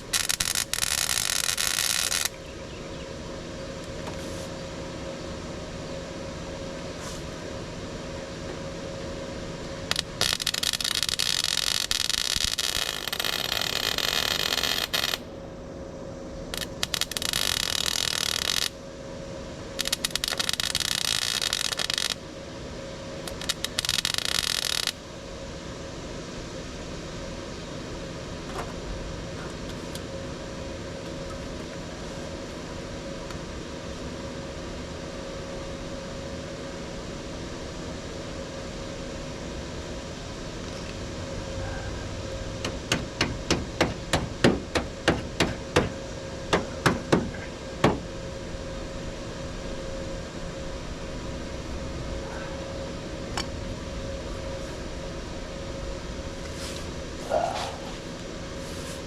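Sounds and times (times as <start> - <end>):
steady background hum: 0.0 - 59.0
power tool running: 9.9 - 15.2.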